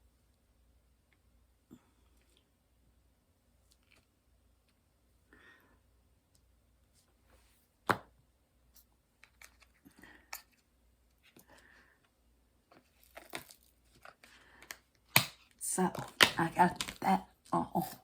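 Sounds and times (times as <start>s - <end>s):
soft handling noises: 8.7s - 15.1s.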